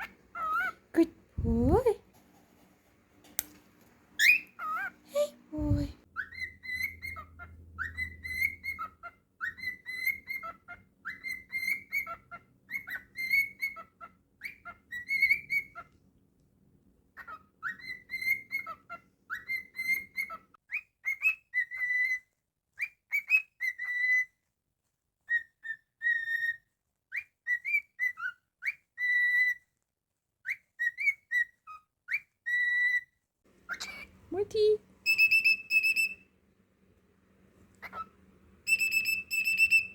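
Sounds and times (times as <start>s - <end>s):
cockatiel whistling: 4.2s - 4.9s, 5.7s - 15.9s, 17.2s - 22.2s, 25.3s - 29.6s, 30.5s - 33.0s, 35.0s - 36.3s, 37.8s - 39.9s.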